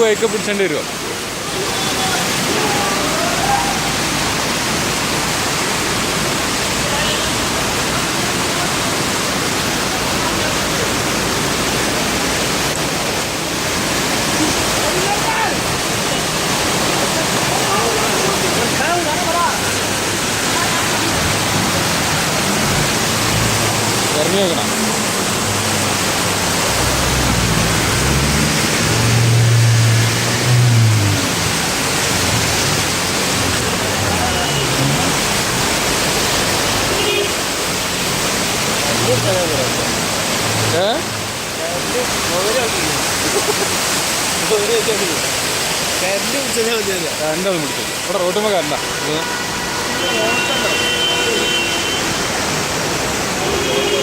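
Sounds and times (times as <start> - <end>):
heavy rain: 0.0 - 54.0
running water: 0.0 - 54.0
rushing rainwater: 0.0 - 54.0
vehicle engine humming: 19.7 - 41.5.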